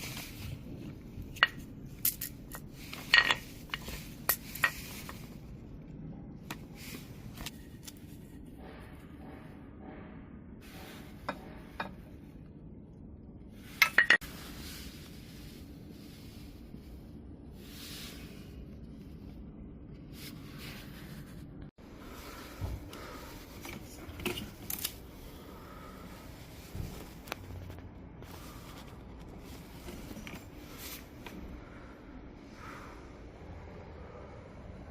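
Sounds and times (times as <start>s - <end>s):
low steady hum: 0.0s - 34.9s
metal parts clinking: 1.2s - 5.2s, 13.8s - 14.2s.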